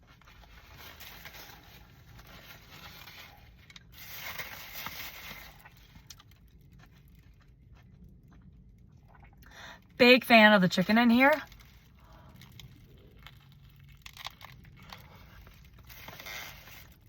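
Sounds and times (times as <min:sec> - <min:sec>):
wrapper rustling: 0:00.1 - 0:07.2, 0:11.2 - 0:17.0
person chewing food: 0:05.4 - 0:09.5, 0:11.5 - 0:17.0.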